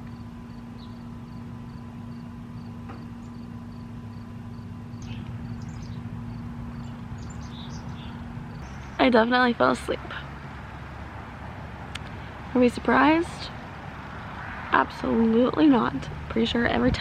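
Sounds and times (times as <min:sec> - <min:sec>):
steady low hum: 0:00.0 - 0:17.0
insect chirping: 0:00.1 - 0:09.0.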